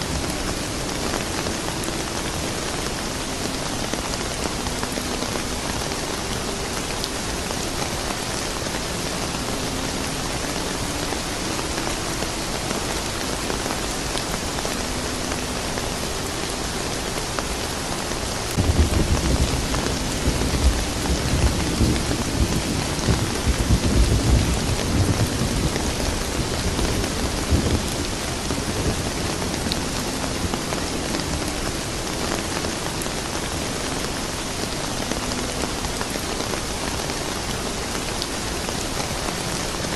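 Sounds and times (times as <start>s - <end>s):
steady rain: 0.0s - 39.9s
thunder rumbling: 18.5s - 32.5s.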